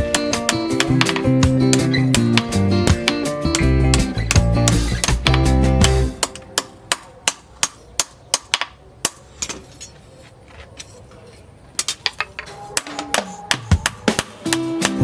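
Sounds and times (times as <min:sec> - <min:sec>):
hammer striking steel on anvil: 0:11.8 - 0:15.0.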